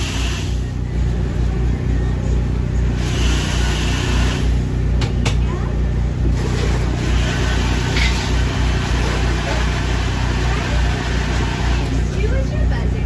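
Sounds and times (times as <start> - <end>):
engine pulsing hum: 0.0 - 13.0.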